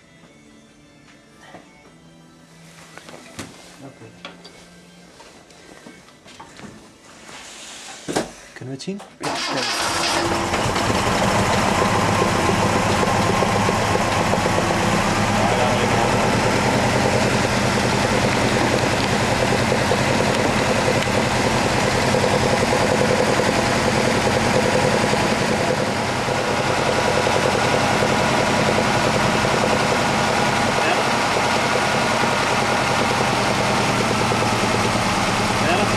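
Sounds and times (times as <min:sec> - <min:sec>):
car engine idling: 0:09.7 - 0:35.9.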